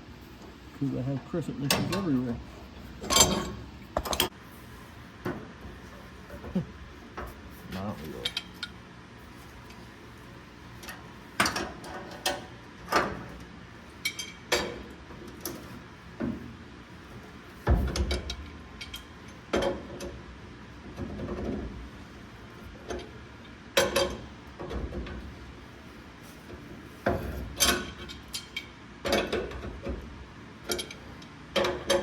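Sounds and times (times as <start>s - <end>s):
wrenches clinking on bolt: 3.0s - 4.3s, 30.6s - 32.0s.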